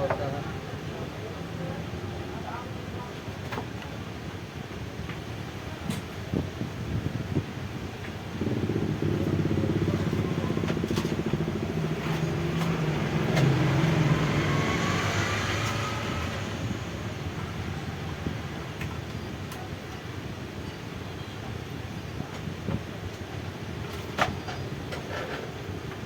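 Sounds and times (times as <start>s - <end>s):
vehicle engine passing by: 8.4s - 18.6s.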